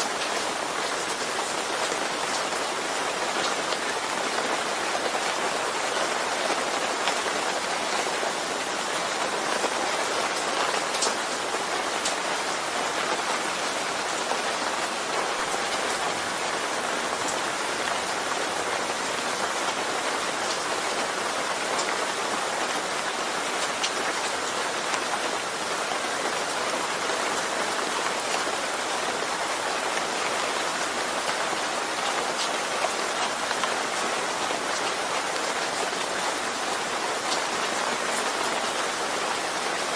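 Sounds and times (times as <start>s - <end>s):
faint raindrop ticks: 12.0s - 12.2s.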